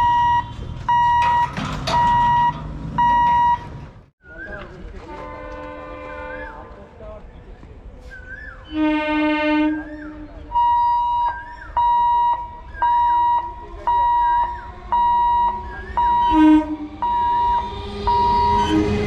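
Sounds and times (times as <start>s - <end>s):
level crossing hooter beeping: 0.0s - 3.8s, 9.7s - 19.0s
locomotive horn blasts: 5.0s - 6.7s, 8.7s - 10.6s, 13.0s - 19.0s.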